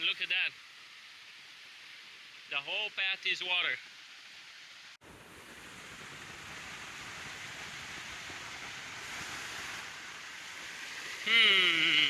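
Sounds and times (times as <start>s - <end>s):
stream rushing: 5.1s - 12.0s.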